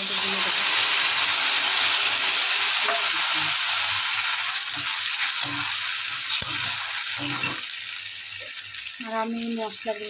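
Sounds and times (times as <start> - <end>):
spice paste sizzling in oil: 0.0 - 10.0
metal spoon stirring: 4.6 - 7.7.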